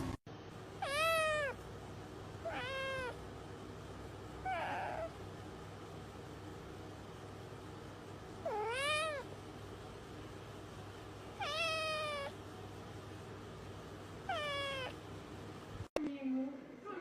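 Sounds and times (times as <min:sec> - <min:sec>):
cat meowing: 0:00.8 - 0:01.6, 0:02.4 - 0:03.2, 0:04.4 - 0:05.1, 0:08.4 - 0:09.3, 0:11.4 - 0:12.4, 0:14.3 - 0:15.0.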